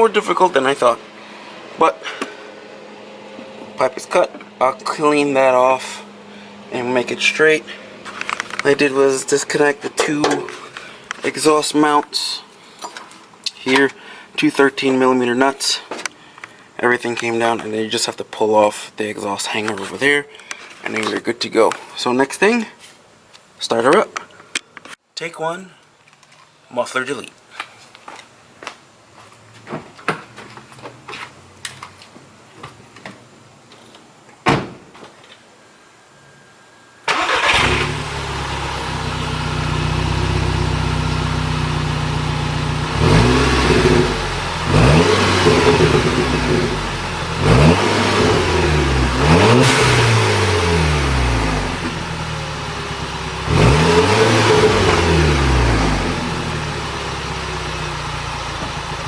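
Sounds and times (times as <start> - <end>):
car engine starting and revving: 37.1 - 59.0.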